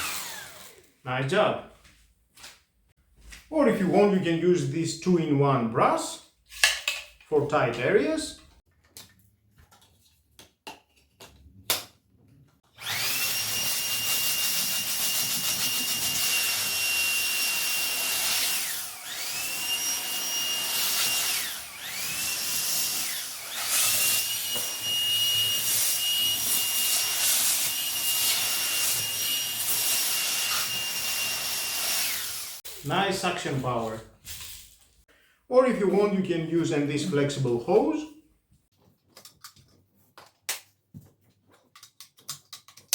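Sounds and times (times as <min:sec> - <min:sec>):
stick vacuum motor whine: 0:00.0 - 0:00.8, 0:12.7 - 0:32.6.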